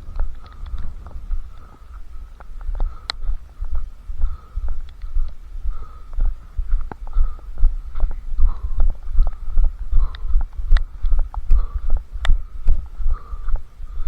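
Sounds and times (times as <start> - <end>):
light clicks and rattles: 0.1 - 3.5.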